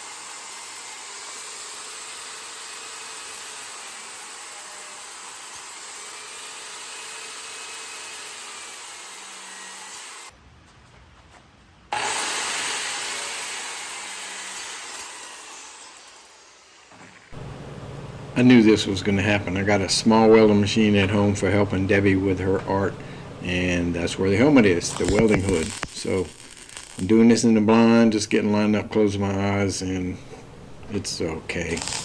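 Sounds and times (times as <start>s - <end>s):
angle grinder cutting steel: 0.0s - 10.3s, 11.9s - 17.6s, 23.5s - 27.9s, 31.6s - 32.0s.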